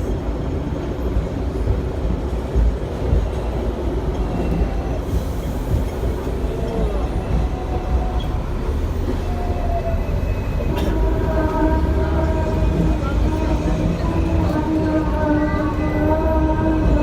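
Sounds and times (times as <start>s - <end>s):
tram rumbling along tracks: 0.0s - 17.0s.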